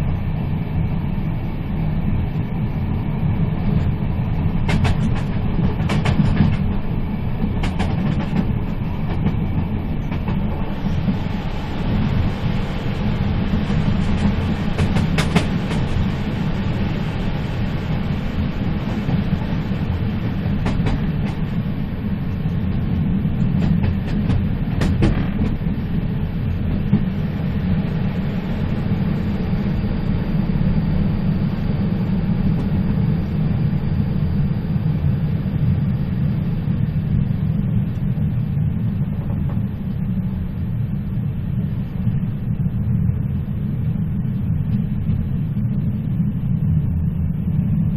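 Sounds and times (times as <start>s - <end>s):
train rumbling: 0.0s - 47.9s
train wheels knocking: 4.6s - 11.4s, 13.6s - 16.2s, 18.8s - 21.6s, 23.4s - 25.8s.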